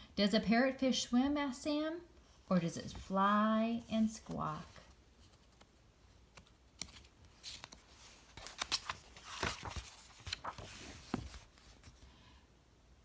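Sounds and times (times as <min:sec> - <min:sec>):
paper page rustling: 0:04.0 - 0:12.0.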